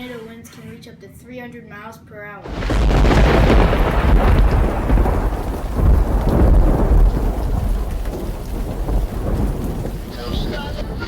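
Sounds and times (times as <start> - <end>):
deep rolling thunder: 2.5 - 11.0
heavy rain: 2.5 - 11.0.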